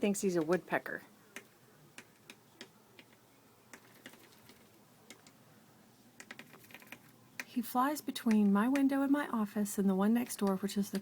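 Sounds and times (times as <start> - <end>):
bird beak pecking on glass: 1.3 - 5.4, 6.2 - 7.5.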